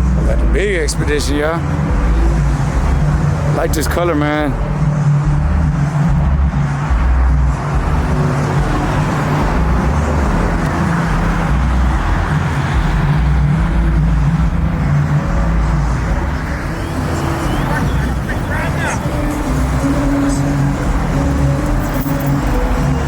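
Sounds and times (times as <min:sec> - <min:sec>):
vehicle bass throb: 0:00.0 - 0:23.0.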